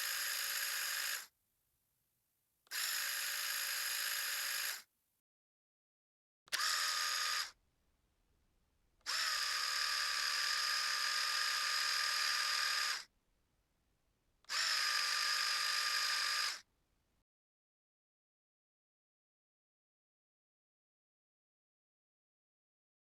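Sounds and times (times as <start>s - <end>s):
electric shaver motor humming: 0.0s - 1.3s, 2.7s - 4.8s, 6.5s - 7.6s, 9.0s - 13.1s, 14.5s - 16.6s.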